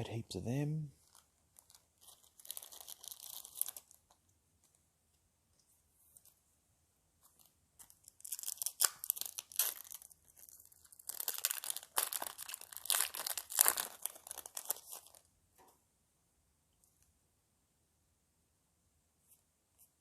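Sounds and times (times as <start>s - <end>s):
foil wrapper tearing and crinkling: 1.0s - 4.2s, 7.4s - 15.3s.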